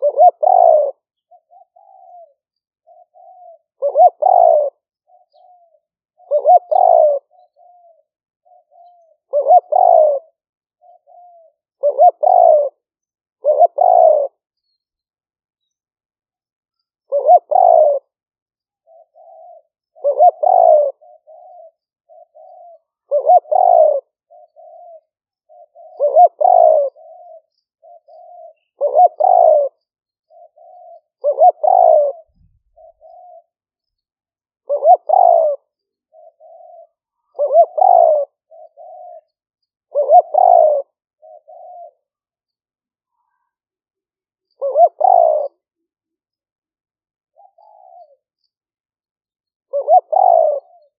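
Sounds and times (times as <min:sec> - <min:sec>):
dove cooing: 0:00.0 - 0:14.4, 0:17.0 - 0:18.2, 0:18.8 - 0:33.6, 0:34.6 - 0:42.3, 0:44.4 - 0:45.9, 0:47.3 - 0:48.5, 0:49.7 - 0:50.9.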